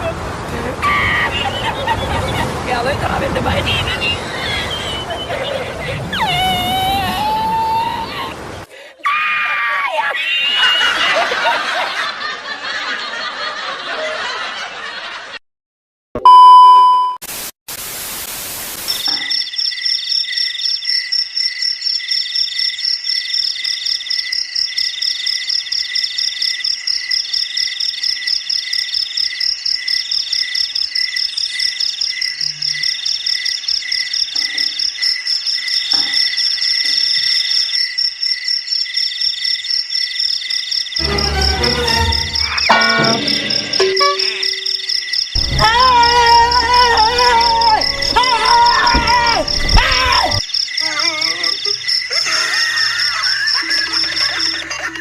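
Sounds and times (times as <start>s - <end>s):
brief beep: 16.2s - 17.2s, 42.6s - 44.9s
burst of static: 17.2s - 19.2s
crickets chirping: 18.8s - 55.0s
shrieking noise: 41.0s - 50.4s.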